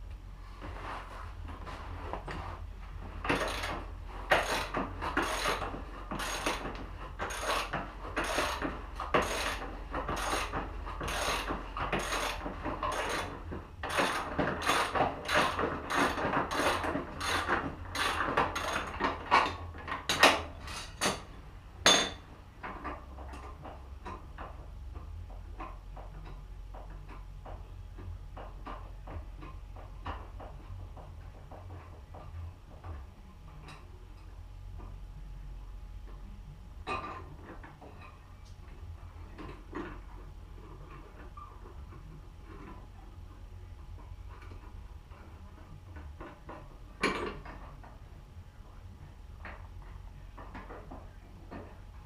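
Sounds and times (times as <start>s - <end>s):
hand tool strokes: 3.2s - 19.0s.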